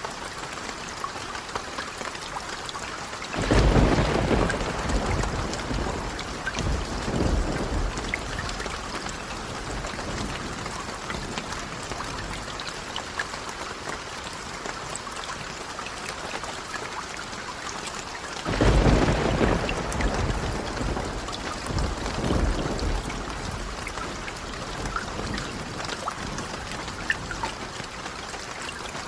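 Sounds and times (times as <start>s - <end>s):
heavy rain: 0.0s - 29.0s
loud thunder clap: 3.4s - 9.0s, 18.5s - 23.8s
thunder rumbling: 3.4s - 12.5s, 18.5s - 27.3s.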